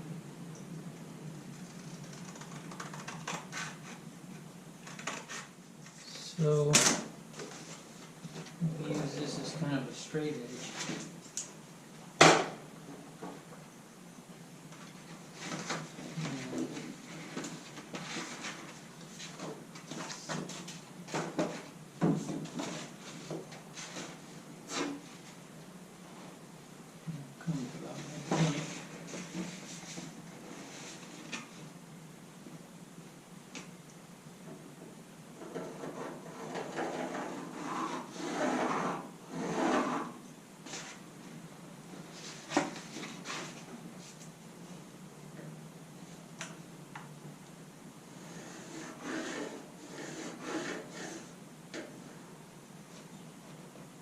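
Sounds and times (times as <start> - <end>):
cardboard scraping on panel: 35.5 - 41.0, 48.3 - 51.3.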